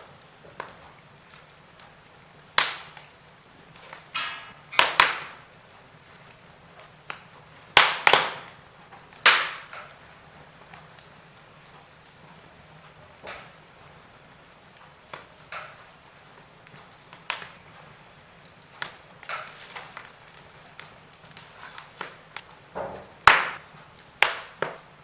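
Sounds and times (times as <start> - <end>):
faint fire crackle: 0.0 - 25.0
wood fire popping: 0.0 - 25.0.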